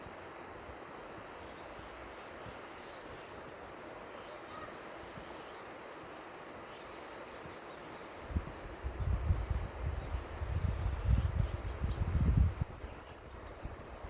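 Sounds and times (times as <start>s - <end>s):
wind buffeting microphone: 8.2s - 14.0s.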